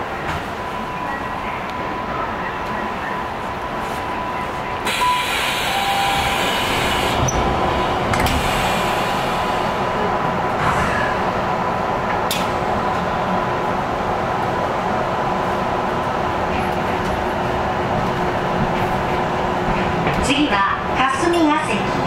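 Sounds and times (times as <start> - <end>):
electric train rumble: 0.0 - 22.0.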